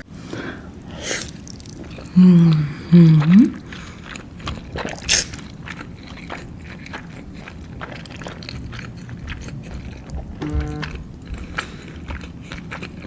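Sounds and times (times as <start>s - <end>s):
wet chewing mouth clicks: 1.2s - 13.0s
person humming: 2.2s - 3.5s, 9.5s - 11.1s.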